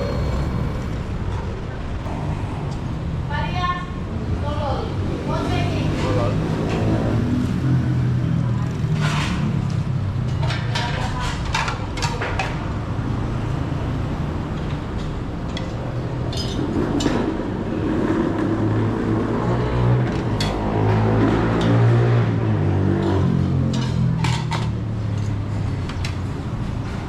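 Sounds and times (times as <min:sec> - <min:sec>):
background chatter: 0:00.0 - 0:06.6
traffic hum: 0:00.0 - 0:27.0
dishes clinking and clattering: 0:16.3 - 0:17.2.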